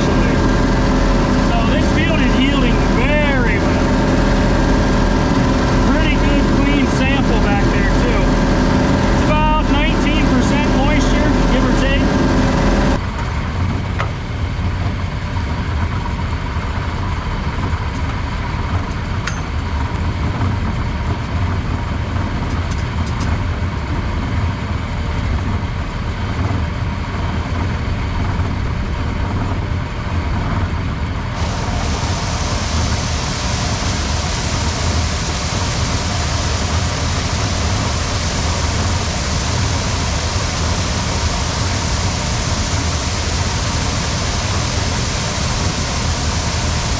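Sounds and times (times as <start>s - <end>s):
heavy machinery engine running: 0.0s - 46.9s
steady hiss: 31.3s - 46.9s.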